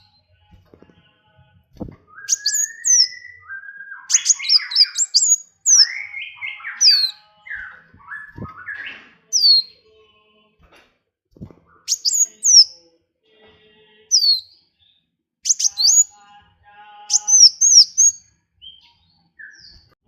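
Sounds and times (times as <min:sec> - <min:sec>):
songbirds singing: 0:02.1 - 0:09.8, 0:11.7 - 0:12.8, 0:14.1 - 0:14.4, 0:15.4 - 0:16.4, 0:17.0 - 0:20.0.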